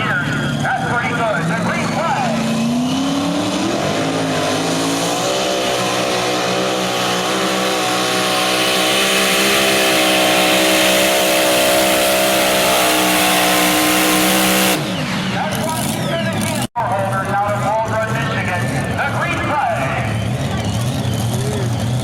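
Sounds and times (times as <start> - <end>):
tractor engine at full throttle: 0.0 - 22.0.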